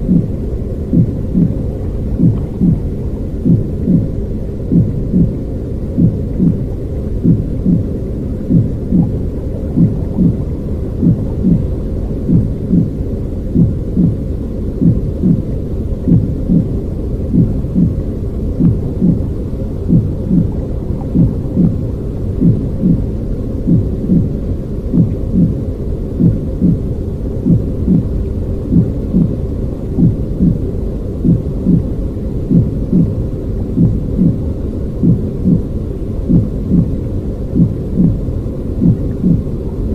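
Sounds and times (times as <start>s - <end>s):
soft heartbeat-like thump: 0.0s - 4.1s, 4.7s - 14.2s, 14.8s - 16.7s, 17.3s - 18.0s, 18.6s - 21.8s, 22.4s - 24.3s, 24.9s - 25.6s, 26.2s - 26.8s, 27.5s - 28.1s, 28.7s - 29.4s, 30.0s - 30.6s, 31.2s - 31.9s, 32.5s - 34.4s, 35.0s - 35.7s, 36.3s - 37.0s, 37.6s - 38.2s, 38.8s - 39.5s
low rumbling noise: 0.0s - 39.9s.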